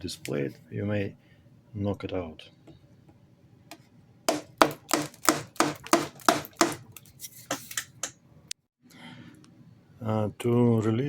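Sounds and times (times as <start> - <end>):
knocks on pump plate: 4.3 - 6.9.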